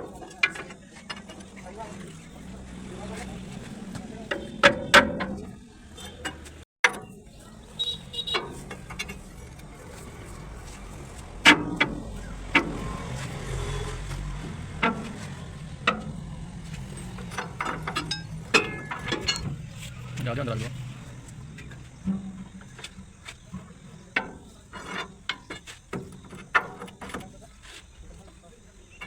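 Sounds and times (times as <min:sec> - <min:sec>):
hand tools knocking metal: 0:14.0 - 0:20.8.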